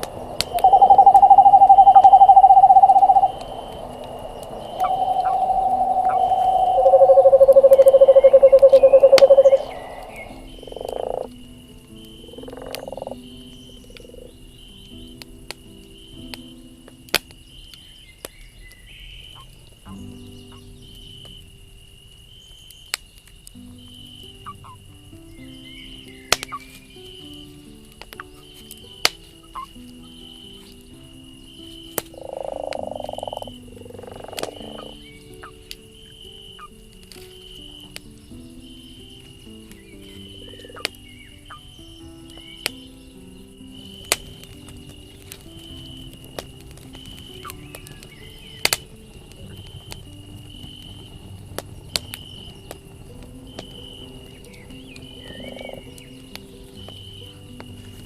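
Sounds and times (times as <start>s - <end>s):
frog high trill: 0.0s - 11.4s, 32.2s - 35.6s
frog low pulsed trill: 0.0s - 11.6s, 12.2s - 14.4s, 32.2s - 35.5s
frog croaks: 0.0s - 15.2s, 23.8s - 58.0s
campfire crackling and popping: 0.0s - 58.0s
soft slow music: 0.0s - 58.0s.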